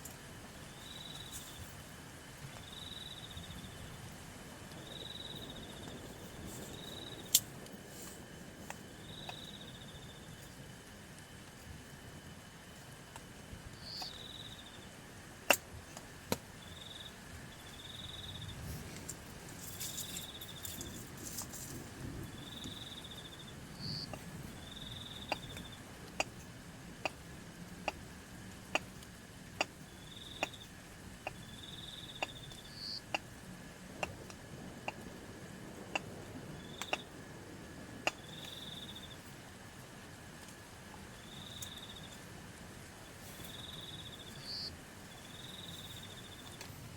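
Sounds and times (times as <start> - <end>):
insects chirping: 0.0 - 15.6, 16.3 - 46.9
high insect drone: 0.0 - 46.9
sharp ticks: 8.7 - 10.8, 13.1 - 14.8, 22.4 - 33.4, 34.0 - 35.1, 35.8 - 37.2, 38.0 - 39.2.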